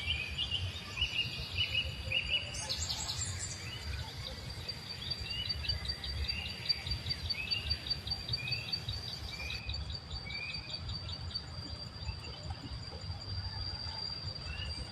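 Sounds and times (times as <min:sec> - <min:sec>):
high-pitched insect trill: 0:00.0 - 0:14.9.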